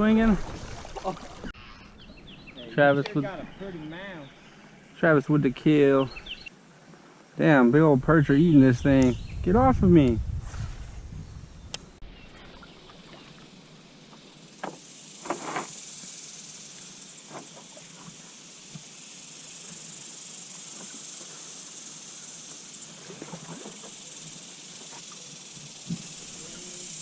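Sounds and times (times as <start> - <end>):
high-pitched hiss: 2.0 - 6.5, 12.9 - 27.0.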